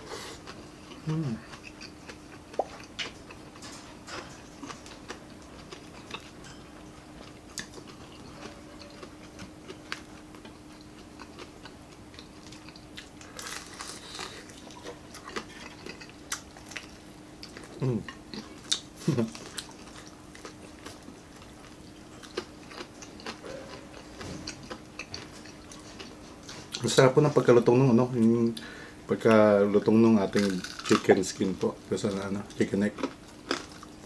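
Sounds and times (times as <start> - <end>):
faint steady hum: 0.0 - 34.0
crunchy chewing: 0.3 - 27.0, 30.3 - 34.0
short vocal sound: 1.0 - 1.4.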